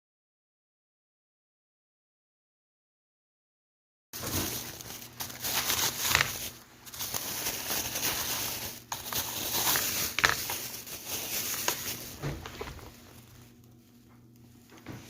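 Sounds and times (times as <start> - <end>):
packaging crinkling and rustling: 4.2 - 15.0.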